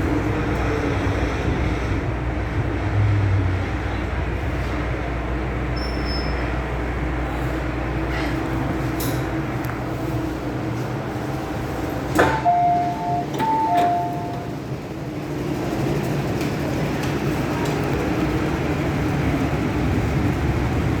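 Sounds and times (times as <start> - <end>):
electric train rumble: 0.0 - 21.0.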